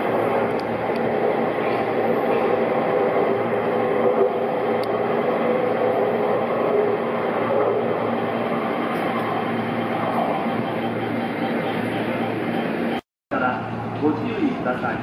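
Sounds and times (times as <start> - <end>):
electric train humming: 0.0 - 14.8.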